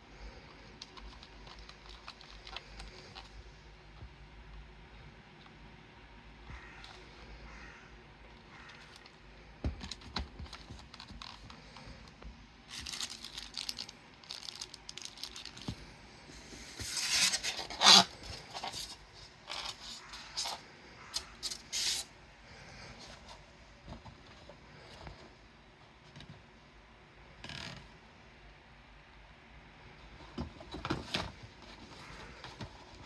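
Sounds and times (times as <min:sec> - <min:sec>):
scraping and rustling: 0:12.7 - 0:22.1.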